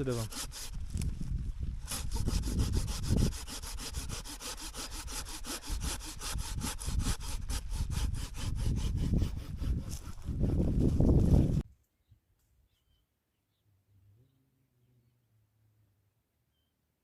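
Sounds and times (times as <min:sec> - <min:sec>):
saw cutting wood: 0:00.0 - 0:00.8, 0:01.8 - 0:11.6.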